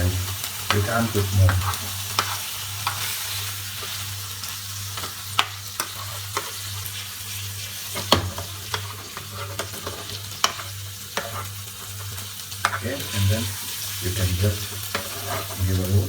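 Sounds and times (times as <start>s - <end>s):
fish fillets sizzling in a pan: 0.0s - 16.0s
spatula tapping a pan: 0.7s - 3.0s, 4.9s - 6.5s, 8.0s - 11.4s, 12.0s - 12.8s.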